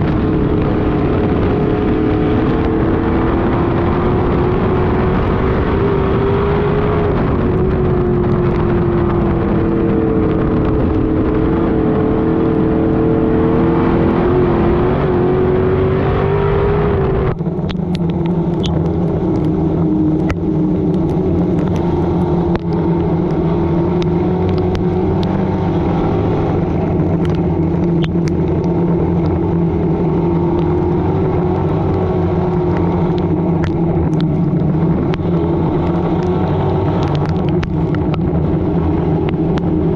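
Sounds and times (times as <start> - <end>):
race car engine running hard: 0.0 - 39.9
sharp ticks and clicks: 17.3 - 39.8.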